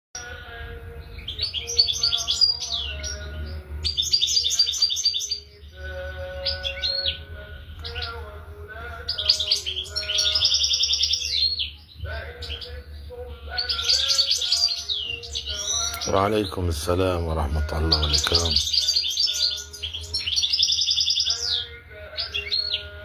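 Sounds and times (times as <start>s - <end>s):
goldfinch singing: 0.2s - 23.0s
steady low hum: 5.4s - 20.3s.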